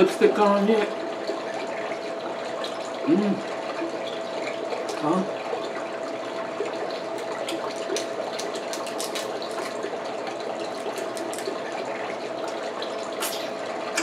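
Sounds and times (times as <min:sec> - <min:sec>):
crab shell cracking: 0:07.2 - 0:09.8, 0:10.6 - 0:11.6
wet sucking and chewing: 0:13.2 - 0:13.6.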